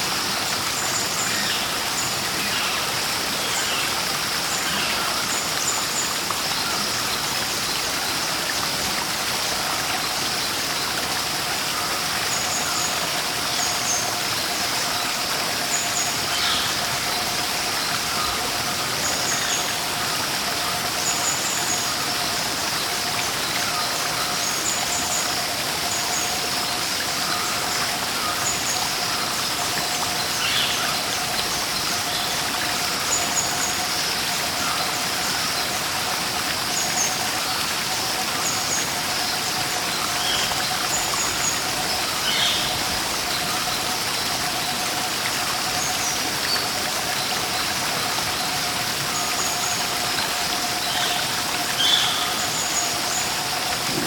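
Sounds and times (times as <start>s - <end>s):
rushing waterfall: 0.0s - 54.0s.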